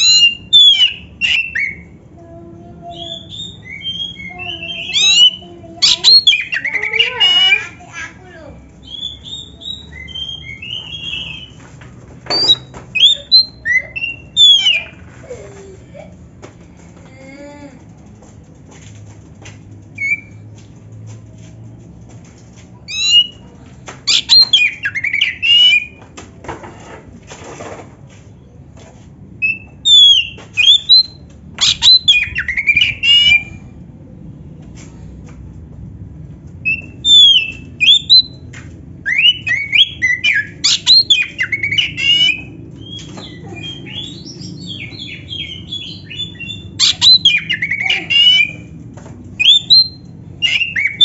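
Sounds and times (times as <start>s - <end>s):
bird singing whistled phrases: 0.0s - 1.9s, 3.0s - 7.6s, 8.8s - 11.6s, 12.3s - 14.9s, 24.1s - 26.0s, 29.4s - 33.6s, 36.6s - 38.4s, 39.1s - 48.7s, 49.4s - 51.0s.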